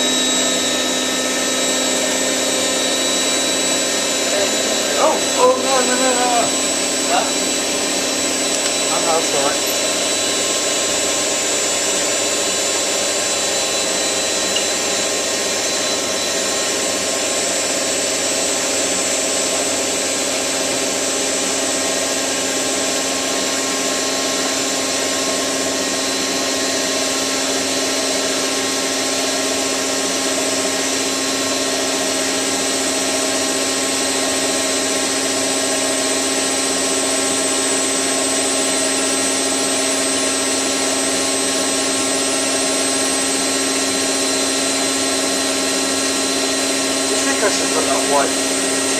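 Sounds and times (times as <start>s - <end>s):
washing machine spinning: 0.0s - 47.6s, 48.3s - 48.9s.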